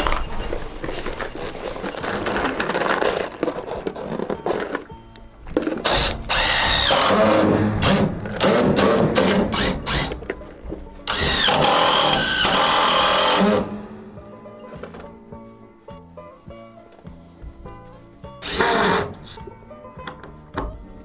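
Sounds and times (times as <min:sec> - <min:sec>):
power drill running: 0:05.8 - 0:10.4, 0:11.1 - 0:14.1, 0:18.4 - 0:19.4.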